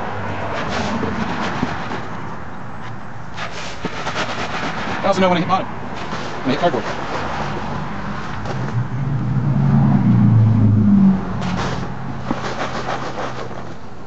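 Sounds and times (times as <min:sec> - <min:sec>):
low engine hum: 0:07.4 - 0:13.0.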